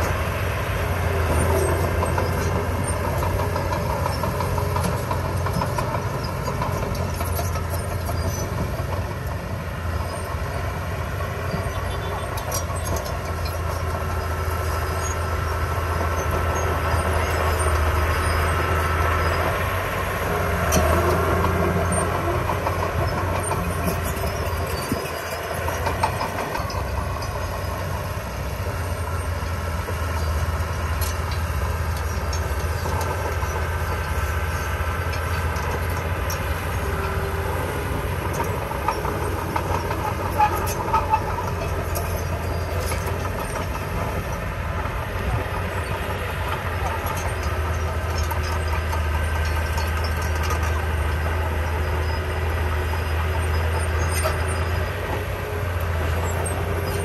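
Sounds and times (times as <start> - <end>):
diesel engine rumbling: 0.0 - 57.0.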